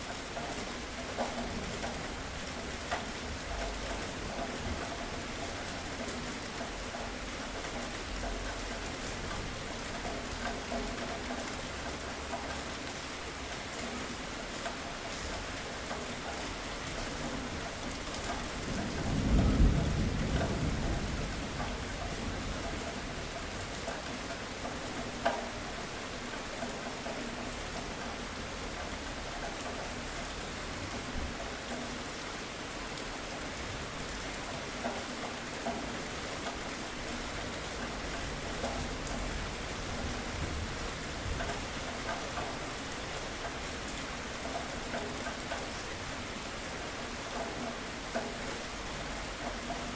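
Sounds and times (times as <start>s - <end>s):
steady rain falling: 0.0s - 49.9s
low rumble of thunder: 18.4s - 23.8s, 38.4s - 42.6s.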